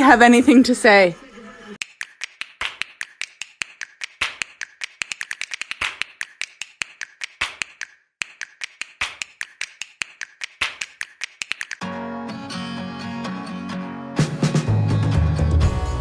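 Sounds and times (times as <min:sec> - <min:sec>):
sharp taps or clicks: 0:01.8 - 0:11.8.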